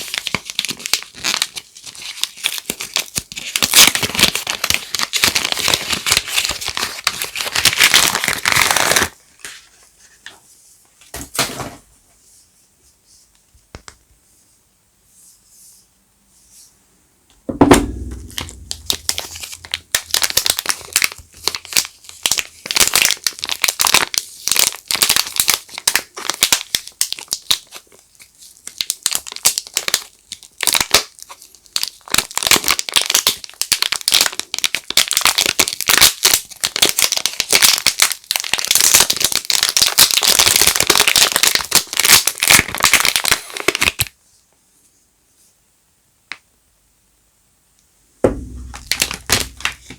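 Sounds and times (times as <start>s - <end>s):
wrapper crinkling: 0.0s - 9.6s, 18.3s - 44.1s, 48.6s - 49.9s
loud thump: 17.5s - 19.8s, 48.2s - 49.9s.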